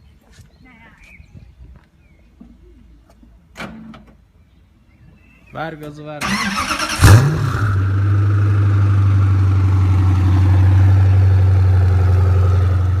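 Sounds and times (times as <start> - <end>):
car engine idling: 6.2 - 13.0.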